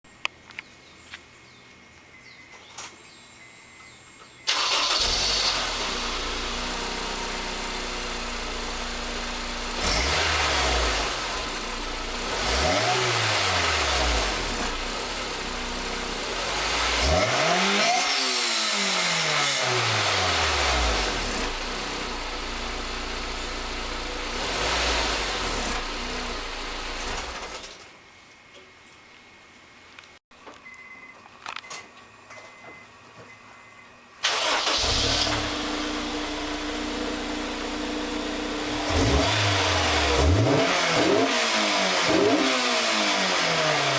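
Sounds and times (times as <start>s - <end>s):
car engine idling and revving: 4.7s - 27.6s, 34.4s - 43.9s.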